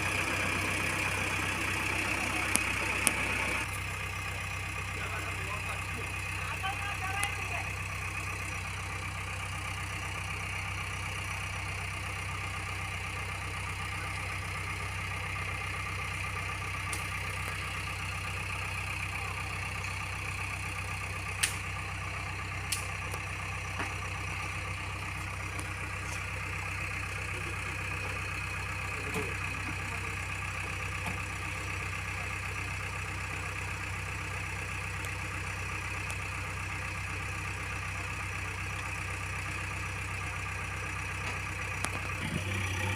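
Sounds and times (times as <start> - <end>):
diesel engine idling: 0.0 - 42.9
sharp clicks: 21.4 - 21.6, 22.7 - 23.2.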